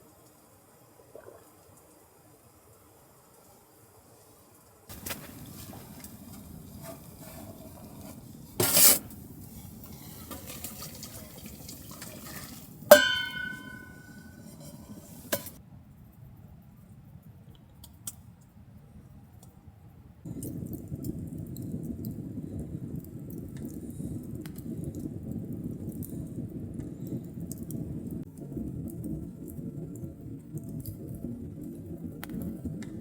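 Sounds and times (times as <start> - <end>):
low background rumble: 4.9 - 15.6
metal cookware clinking: 4.9 - 15.6
metal cookware scraping: 4.9 - 15.6
metal knock: 12.9 - 15.6.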